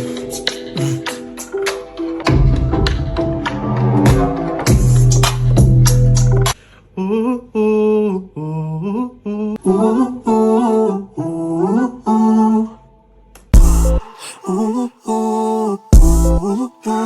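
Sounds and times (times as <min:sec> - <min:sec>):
person humming melody: 0:00.0 - 0:01.2, 0:13.6 - 0:17.0
drum beat: 0:02.3 - 0:06.0, 0:13.6 - 0:14.0, 0:16.0 - 0:16.4.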